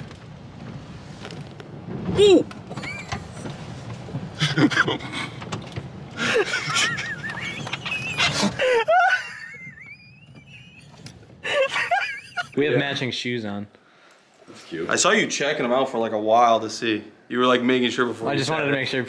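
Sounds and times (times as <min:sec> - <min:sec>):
voices and laughter: 0:06.2 - 0:13.3.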